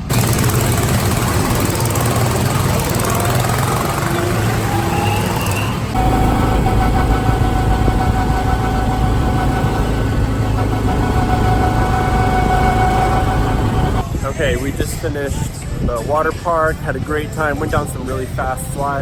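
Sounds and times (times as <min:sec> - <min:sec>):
go-kart engine running: 0:00.0 - 0:14.0.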